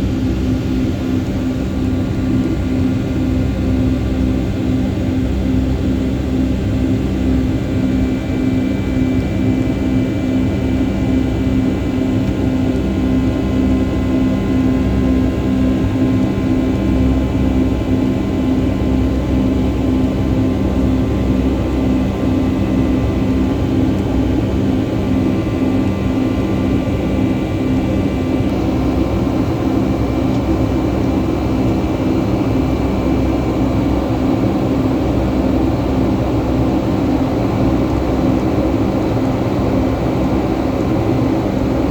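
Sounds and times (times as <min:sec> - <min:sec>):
steady hum tones: 0:19.0 - 0:41.9.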